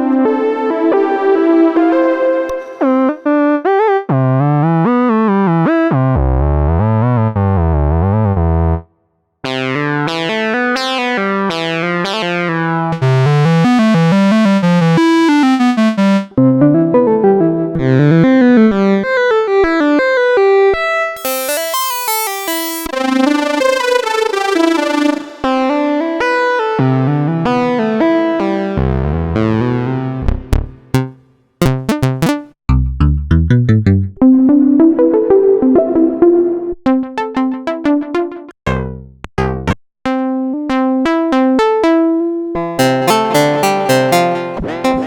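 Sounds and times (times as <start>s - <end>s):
buzzy synthesizer notes: 12.9s - 16.4s, 21.2s - 26.1s, 42.8s - 45.0s.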